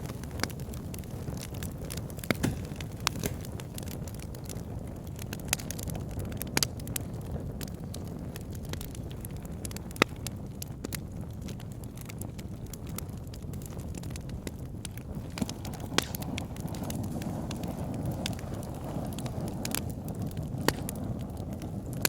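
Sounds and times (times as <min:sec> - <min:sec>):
flame rumbling: 0:00.0 - 0:22.0
logs crackling and popping: 0:00.0 - 0:22.0.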